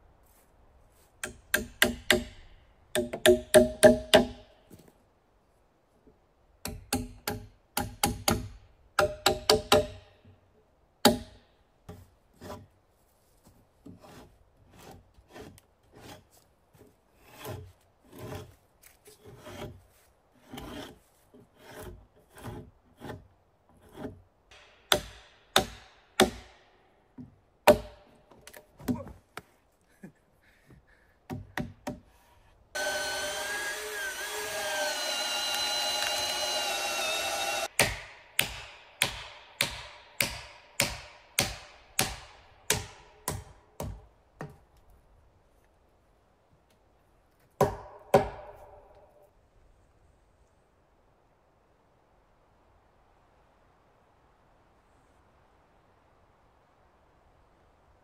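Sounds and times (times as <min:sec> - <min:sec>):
hand saw cutting wood: 0:12.4 - 0:12.7, 0:13.8 - 0:16.4, 0:17.1 - 0:19.8, 0:20.4 - 0:26.5, 0:31.3 - 0:44.0.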